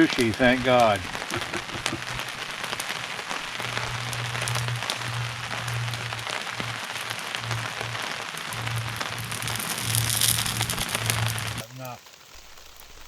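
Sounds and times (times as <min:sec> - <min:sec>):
steady rain falling: 0:00.0 - 0:13.0
music with low bass line: 0:01.6 - 0:11.6.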